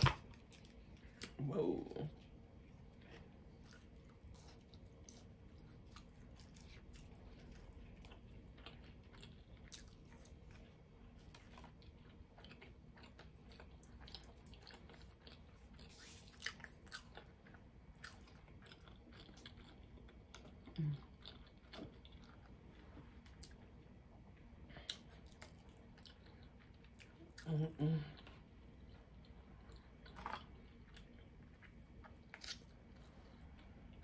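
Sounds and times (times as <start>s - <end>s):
person chewing: 0.0s - 34.0s.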